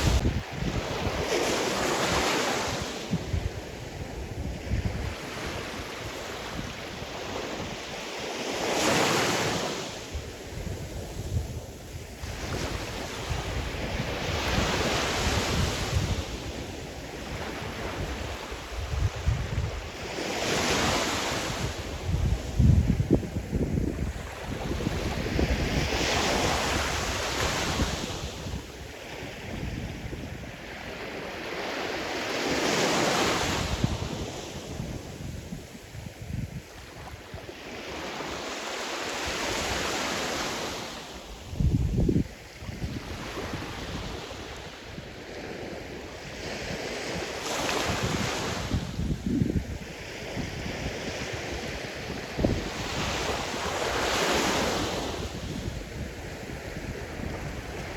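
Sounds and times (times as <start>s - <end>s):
wind buffeting microphone: 0.0s - 7.8s, 10.1s - 30.8s, 41.5s - 45.1s, 45.7s - 57.9s
waves breaking on shore: 0.0s - 57.9s.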